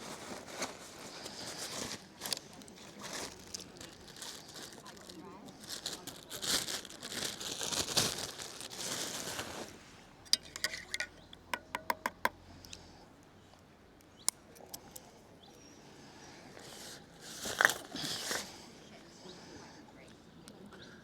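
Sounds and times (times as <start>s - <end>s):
food wrapping crinkling: 0.0s - 12.1s, 16.6s - 18.4s.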